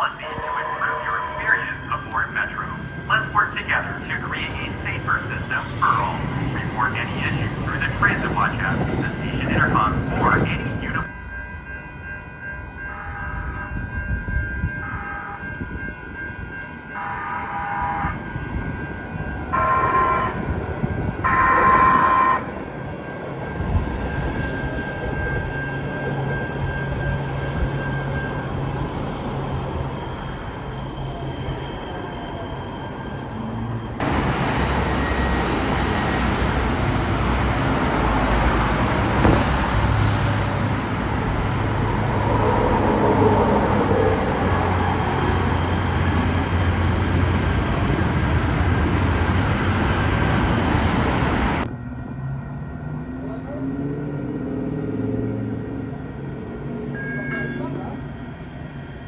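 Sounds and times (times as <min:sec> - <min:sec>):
train rumbling: 0:00.0 - 0:59.0
train horn blasts: 0:14.8 - 0:15.4, 0:17.0 - 0:18.3, 0:19.5 - 0:20.5, 0:21.2 - 0:22.5.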